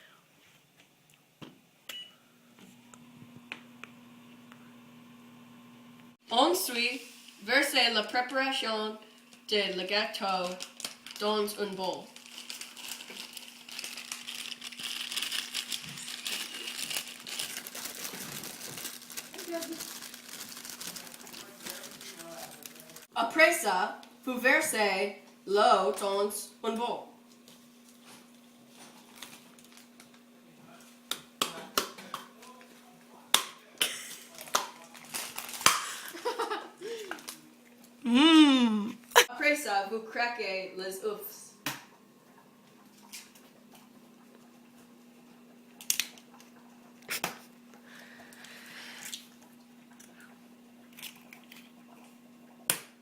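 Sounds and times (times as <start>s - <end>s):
faint steady hum: 0.0s - 53.0s
packet crinkling and rustling: 10.2s - 23.1s, 28.8s - 30.2s, 34.2s - 36.5s.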